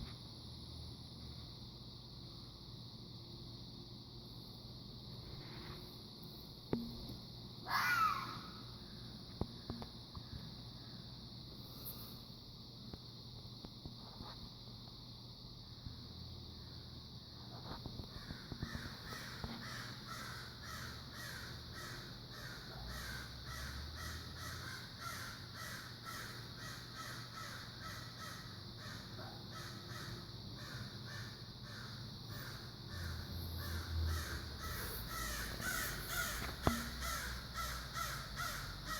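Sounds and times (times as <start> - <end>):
fox calling: 7.7 - 8.5.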